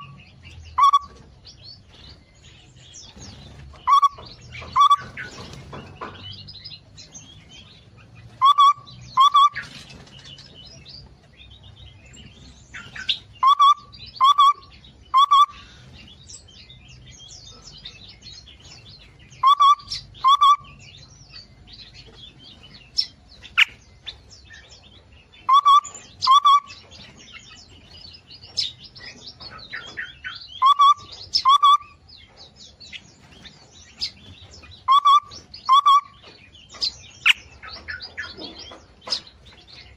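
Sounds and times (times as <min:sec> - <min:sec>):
songbirds twittering: 0:00.0 - 0:39.9.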